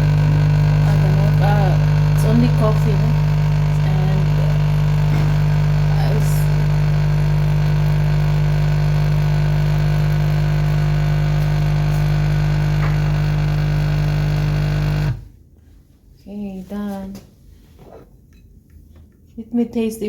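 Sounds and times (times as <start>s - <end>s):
coffee machine pump buzzing: 0.0s - 15.3s.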